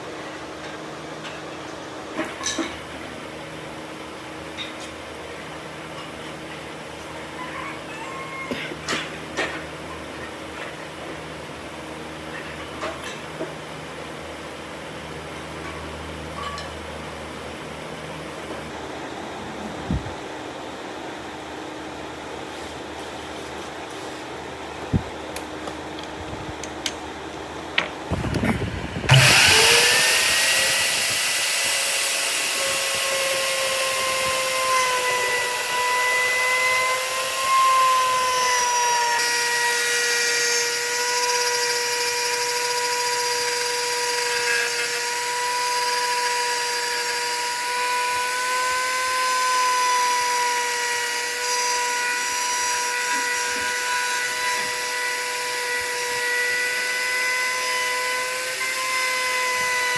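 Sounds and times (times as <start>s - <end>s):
electric power tool whining: 27.8s - 59.9s.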